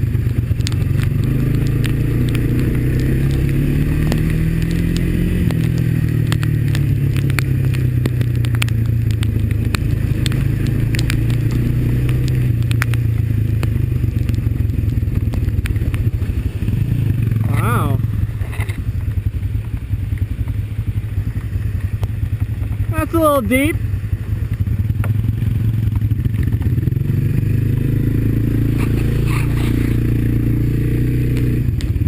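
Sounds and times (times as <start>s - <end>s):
atv engine running: 0.0s - 32.0s
sharp clicks and cracks: 0.1s - 20.5s, 24.5s - 26.9s, 31.3s - 32.0s.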